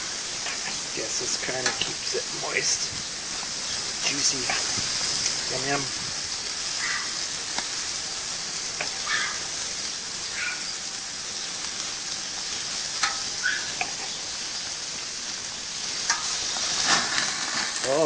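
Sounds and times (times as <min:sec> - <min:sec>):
meat sizzling on a grill: 0:00.0 - 0:18.0
pops and crackles: 0:00.4 - 0:05.4, 0:07.4 - 0:07.8, 0:08.7 - 0:09.2, 0:11.6 - 0:15.2, 0:15.8 - 0:18.0.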